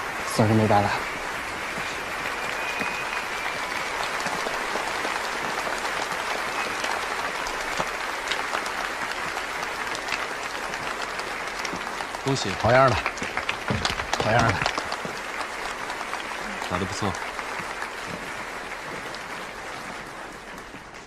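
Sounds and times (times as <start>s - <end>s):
people clapping: 0.0s - 21.0s.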